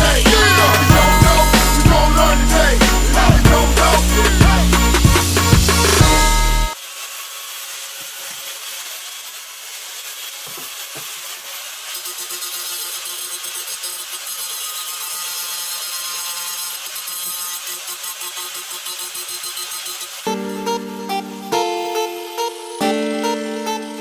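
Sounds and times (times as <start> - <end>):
tool rasping against workpiece: 10.2 - 20.4.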